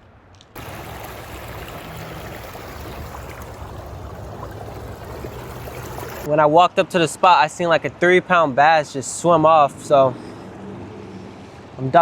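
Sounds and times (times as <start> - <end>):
river water rushing: 0.6 - 6.3.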